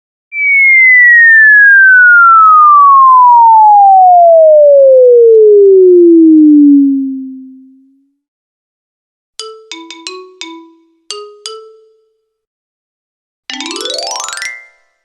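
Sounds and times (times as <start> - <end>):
cartoon falling whistle: 0.3 - 7.6.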